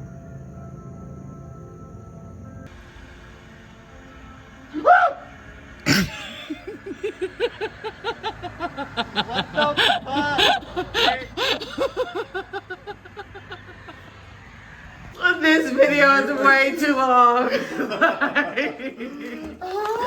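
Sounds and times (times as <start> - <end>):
person giggling: 5.9 - 13.8, 17.5 - 20.0.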